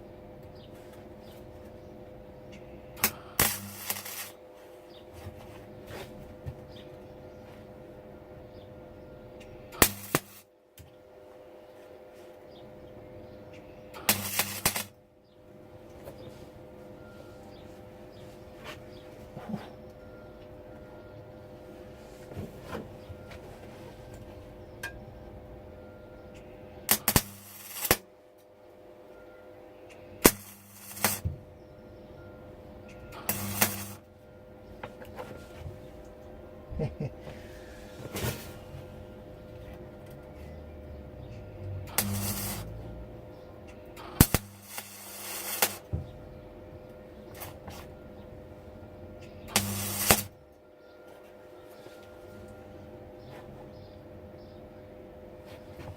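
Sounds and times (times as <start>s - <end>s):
steady hum: 0.0s - 55.9s
welder hum: 2.8s - 6.1s, 9.7s - 10.5s, 13.9s - 15.0s, 23.8s - 28.1s, 29.9s - 40.2s, 41.6s - 46.1s, 49.2s - 50.4s
welder arc crackling with pops: 3.0s - 4.4s, 9.7s - 10.9s, 13.9s - 15.0s, 26.8s - 28.1s, 29.9s - 31.4s, 33.2s - 34.1s, 41.8s - 42.8s, 43.8s - 46.0s, 47.3s - 47.8s, 49.5s - 50.4s.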